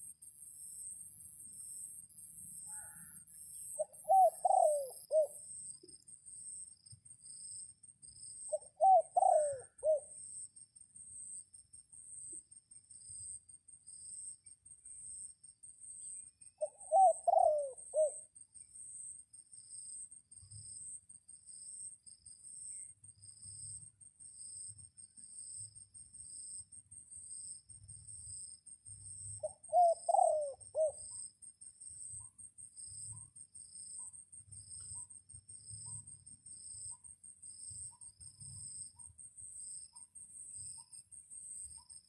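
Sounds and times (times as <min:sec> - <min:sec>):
insects chirping: 0:00.0 - 0:42.0
dove cooing: 0:03.8 - 0:05.4, 0:08.5 - 0:10.1, 0:16.6 - 0:18.2, 0:29.4 - 0:31.0.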